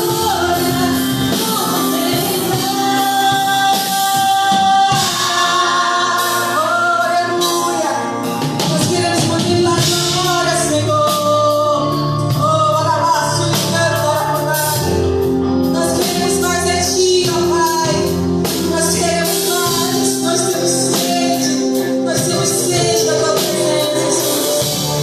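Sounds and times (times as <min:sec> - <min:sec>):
congregation singing: 0:00.0 - 0:12.2, 0:18.5 - 0:25.0
band with drums and cymbals: 0:00.0 - 0:25.0.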